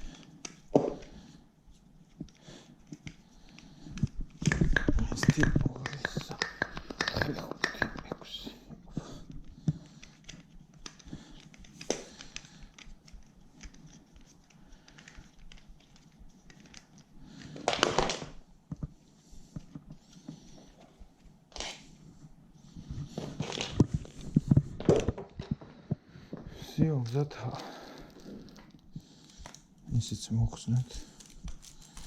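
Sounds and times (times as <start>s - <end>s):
packaging rustling and crinkling: 23.0s - 32.0s.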